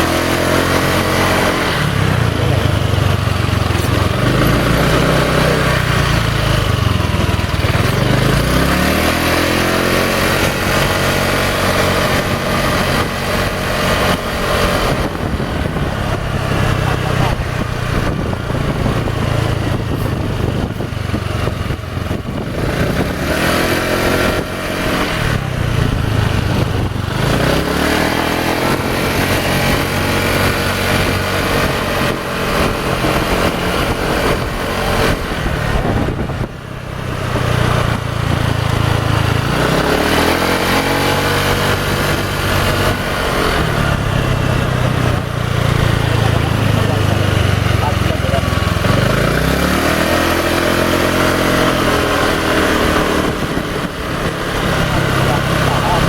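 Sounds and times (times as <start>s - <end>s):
motorcycle engine idling and revving: 0.0s - 56.0s.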